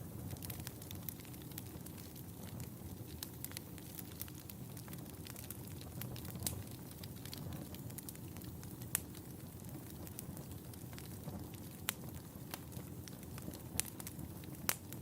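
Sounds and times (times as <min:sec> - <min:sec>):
wood fire crackling: 0:00.0 - 0:15.0
sharp pops of fire: 0:00.2 - 0:15.0.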